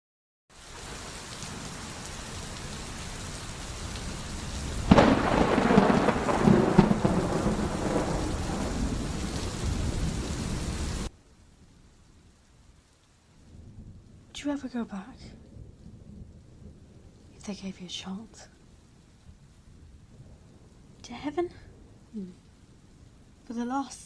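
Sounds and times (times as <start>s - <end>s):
steady rain: 0.5s - 24.0s
thunderclap rolling into rumble: 4.6s - 11.1s.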